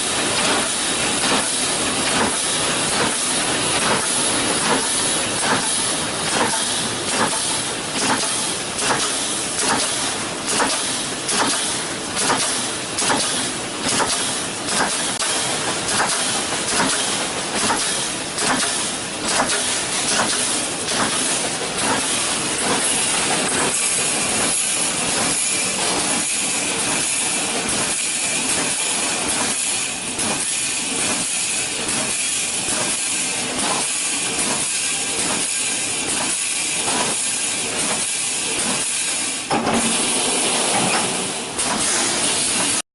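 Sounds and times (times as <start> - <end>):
machine knocking strokes: 0.0 - 42.8
welding machine hissing: 0.0 - 42.8.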